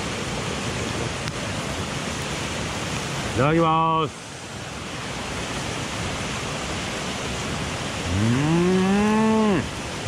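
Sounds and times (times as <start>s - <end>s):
mountain stream rushing: 0.0s - 10.0s
man humming with delight: 8.1s - 9.7s.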